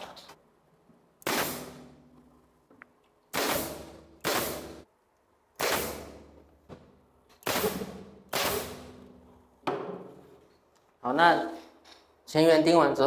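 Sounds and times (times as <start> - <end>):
nail gun firing into wood: 1.2 - 1.9, 3.3 - 4.8, 5.6 - 6.4, 7.3 - 9.1.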